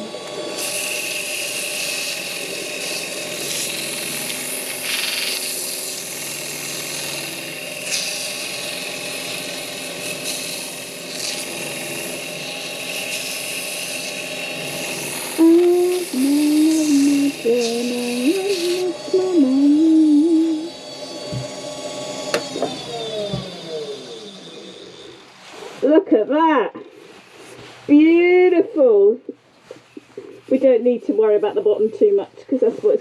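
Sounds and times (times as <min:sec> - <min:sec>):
wood lathe running: 0:00.0 - 0:25.9
tool scraping spinning wood: 0:00.0 - 0:26.1.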